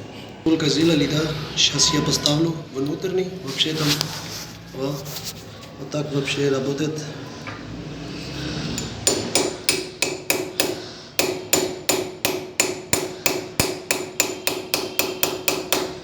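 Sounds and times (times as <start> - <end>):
hammer striking metal: 8.8 - 16.0.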